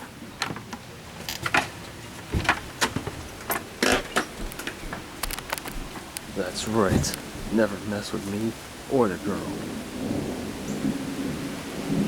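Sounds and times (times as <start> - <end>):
low steady hiss: 1.2 - 12.0
sharp clicks and knocks: 2.3 - 7.6.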